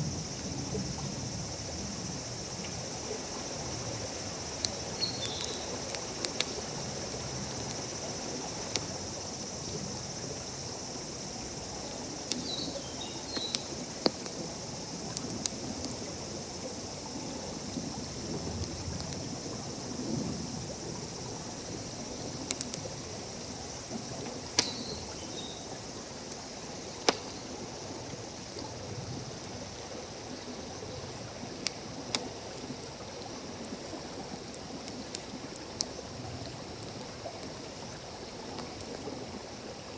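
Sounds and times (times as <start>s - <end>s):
high insect drone: 0.0s - 31.4s
campfire crackling and popping: 2.4s - 10.1s, 11.6s - 20.0s, 22.2s - 23.2s, 23.8s - 25.1s, 26.3s - 27.5s.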